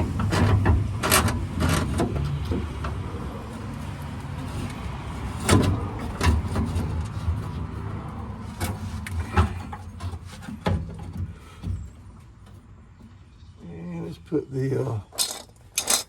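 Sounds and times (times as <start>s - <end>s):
metal clanks and knocks: 0.0s - 3.0s, 5.3s - 7.6s, 8.5s - 13.2s, 15.1s - 16.0s.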